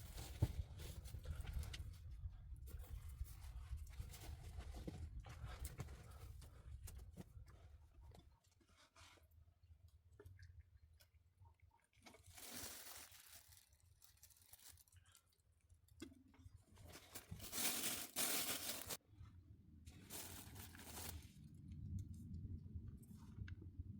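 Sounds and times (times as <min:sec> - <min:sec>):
rustling crunching noise: 0:16.9 - 0:19.0, 0:20.0 - 0:21.3
faint low hum: 0:18.5 - 0:23.9.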